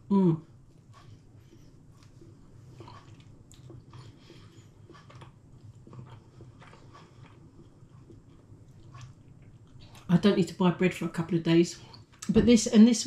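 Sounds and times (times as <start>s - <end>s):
person chewing bread: 0.5s - 10.1s.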